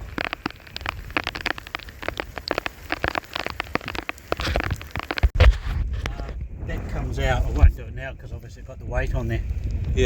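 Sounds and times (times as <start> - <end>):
heavy rain on hard surface: 0.0 - 7.8.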